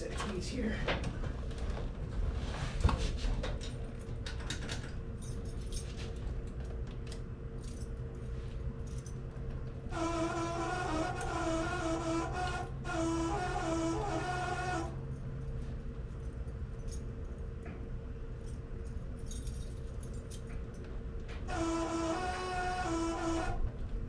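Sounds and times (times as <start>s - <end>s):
keys jangling and clicking: 3.6s - 9.2s, 15.4s - 17.6s, 18.4s - 20.9s
wavering pulsing whine: 9.9s - 15.6s, 21.5s - 24.0s.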